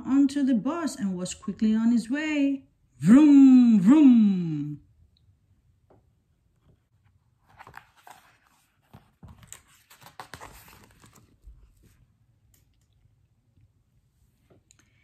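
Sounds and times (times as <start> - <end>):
book page turning: 7.0 - 12.0.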